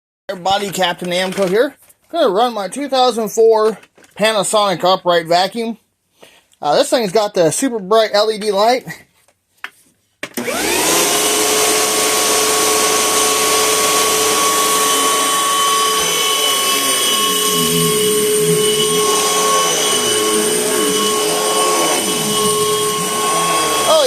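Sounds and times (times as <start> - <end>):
vacuum cleaner whine: 10.4 - 24.0.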